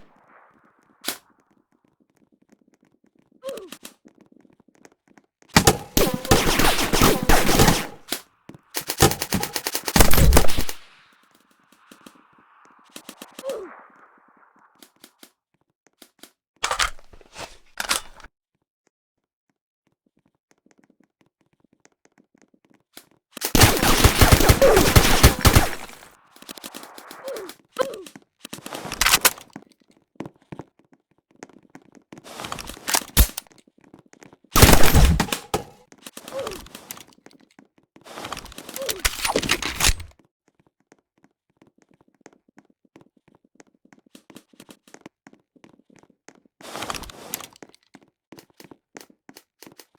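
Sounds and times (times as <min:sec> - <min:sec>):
airsoft gun bursts: 0:05.6 - 0:08.2, 0:08.8 - 0:10.9, 0:23.4 - 0:27.4, 0:34.6 - 0:35.8.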